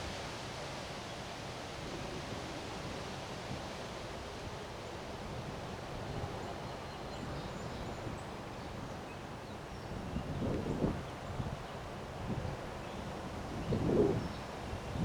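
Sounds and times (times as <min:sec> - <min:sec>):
wind rustling leaves: 0:00.0 - 0:15.0
wind buffeting microphone: 0:13.3 - 0:15.0.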